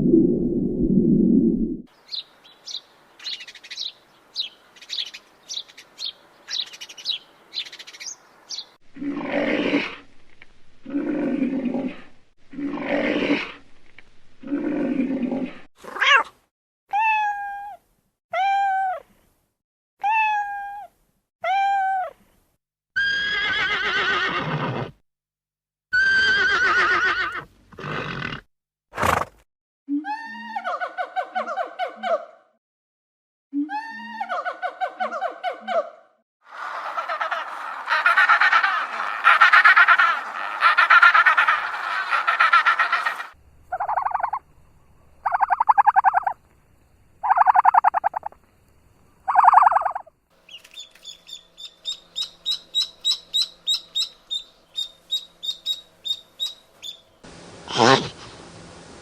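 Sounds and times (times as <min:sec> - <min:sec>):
rising and falling animal calls: 0:25.9 - 0:28.5, 0:36.5 - 0:44.4, 0:45.2 - 0:46.4, 0:47.2 - 0:48.4, 0:49.2 - 0:57.0
long low animal calls: 0:36.5 - 0:44.4
short high animal chirps: 0:49.3 - 0:57.0.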